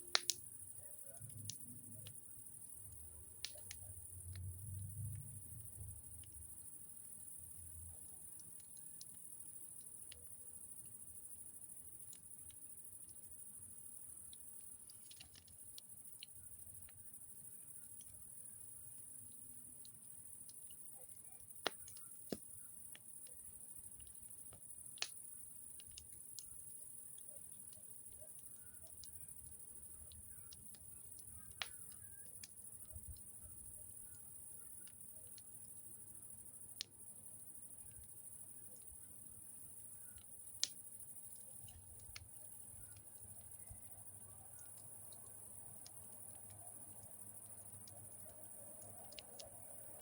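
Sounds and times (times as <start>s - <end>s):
campfire crackling and popping: 0.0s - 50.0s.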